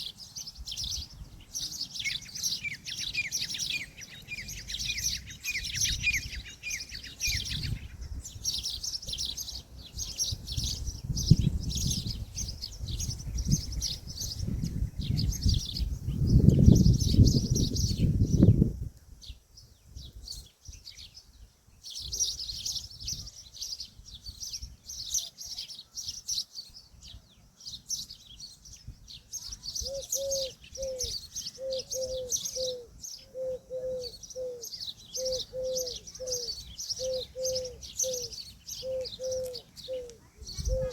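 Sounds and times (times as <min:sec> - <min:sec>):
small birds chirping: 0:00.0 - 0:40.9
bird repeating low calls: 0:29.4 - 0:40.9.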